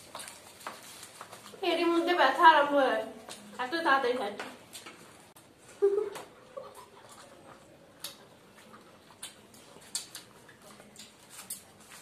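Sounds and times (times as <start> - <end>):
chewing mouth sounds: 6.6 - 12.0.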